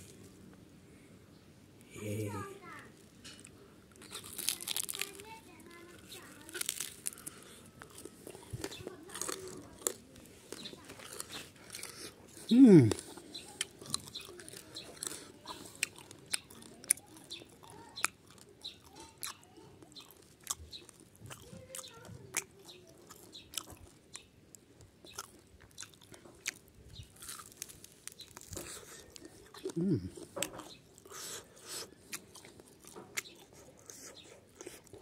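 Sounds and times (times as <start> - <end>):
person chewing crunchy meat: 3.9 - 35.0.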